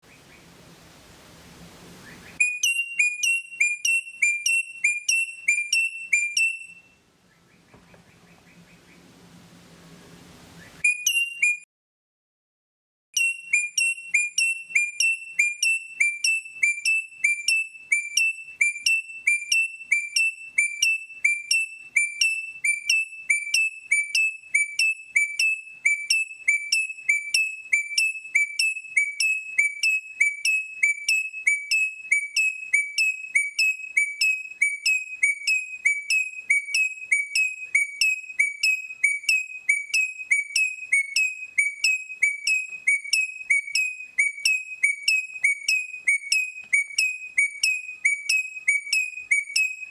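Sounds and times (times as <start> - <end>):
faint low hum: 0.0 - 2.5, 6.5 - 10.9
high whistle-like chirps: 2.0 - 7.0, 10.6 - 11.7, 13.2 - 49.9.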